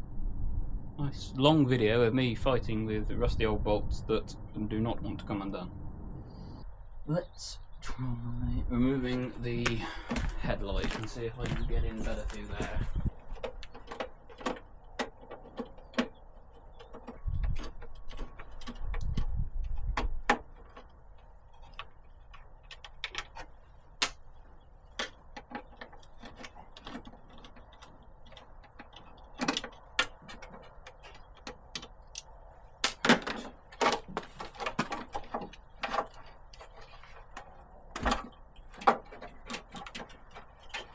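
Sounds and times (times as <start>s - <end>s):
hand tools clicking and tapping: 9.6s - 40.9s.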